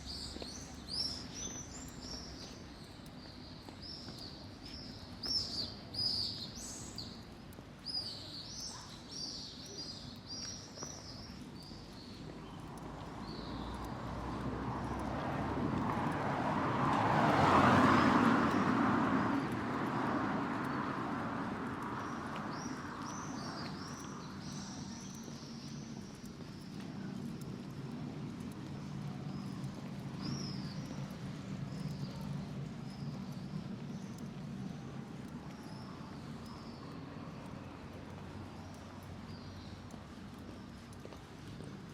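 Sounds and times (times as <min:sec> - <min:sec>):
small birds chirping: 0:00.0 - 0:15.2, 0:17.3 - 0:41.9
vehicle passing by: 0:13.1 - 0:22.4.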